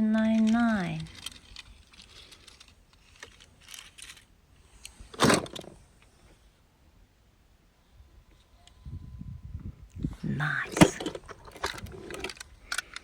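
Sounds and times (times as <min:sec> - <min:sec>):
toy cars clicking and rattling: 0:00.1 - 0:05.8, 0:10.7 - 0:13.0.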